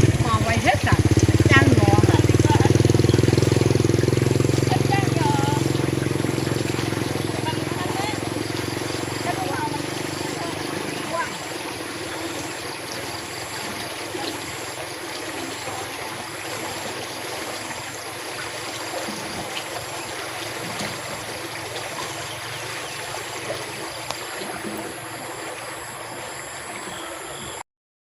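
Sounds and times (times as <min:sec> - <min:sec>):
stream water running: 0:00.0 - 0:27.6
faint ticks: 0:24.0 - 0:24.2.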